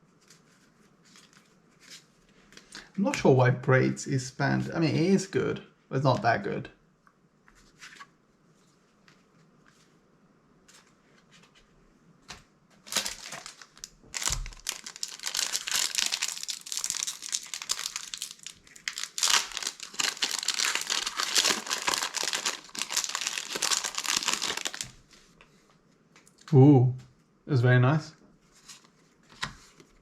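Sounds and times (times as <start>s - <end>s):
foil wrapper crinkling: 12.8s - 25.0s.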